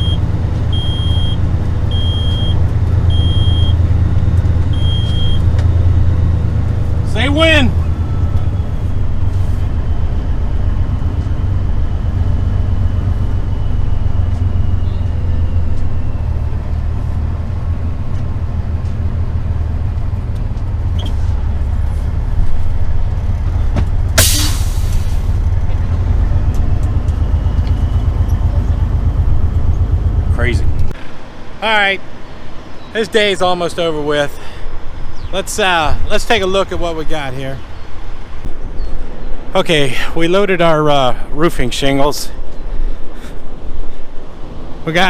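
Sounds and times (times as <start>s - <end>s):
diesel truck engine running: 0.0s - 45.0s
air brakes hissing: 24.2s - 25.3s.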